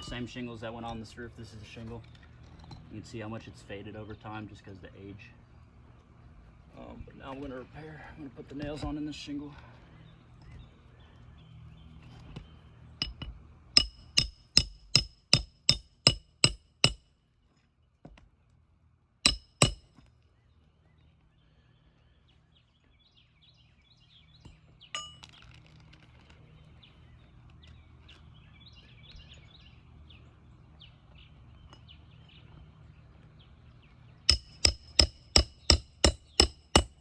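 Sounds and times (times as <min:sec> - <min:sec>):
hammer striking nails: 0:13.0 - 0:17.0, 0:19.3 - 0:20.0, 0:34.3 - 0:37.0.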